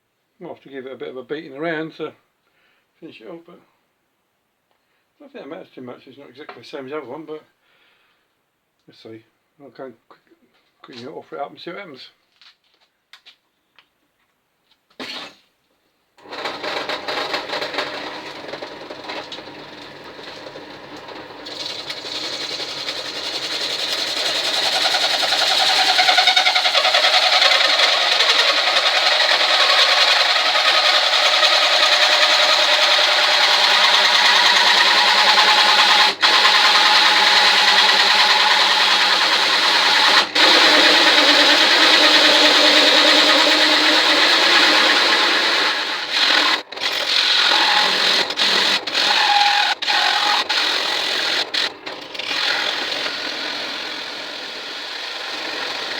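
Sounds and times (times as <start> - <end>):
power tool working on steel: 16.2 - 55.9.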